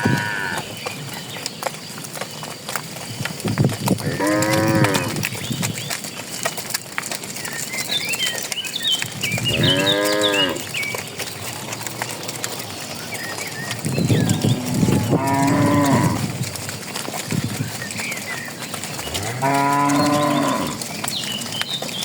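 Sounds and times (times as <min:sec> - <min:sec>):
cattle mooing: 0:00.0 - 0:00.7, 0:04.0 - 0:05.2, 0:09.5 - 0:10.8, 0:14.1 - 0:16.4, 0:19.0 - 0:20.9
birds chirping: 0:00.0 - 0:22.0
clicks from walking herd: 0:00.0 - 0:22.0.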